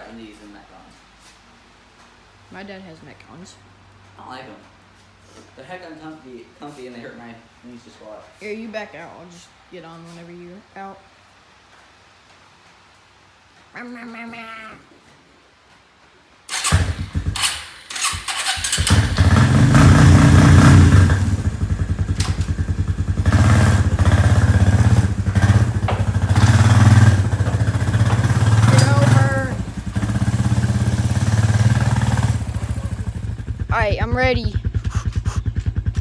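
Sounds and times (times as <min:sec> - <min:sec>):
small engine sputtering and revving: 0:16.5 - 0:36.0.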